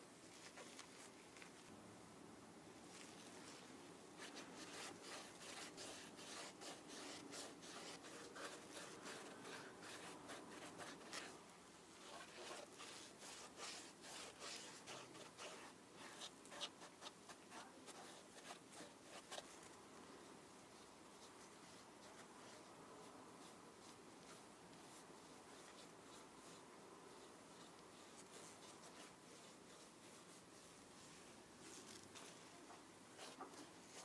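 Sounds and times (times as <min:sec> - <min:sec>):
rubbing strokes on sneaker: 0:04.2 - 0:19.6, 0:23.4 - 0:32.4.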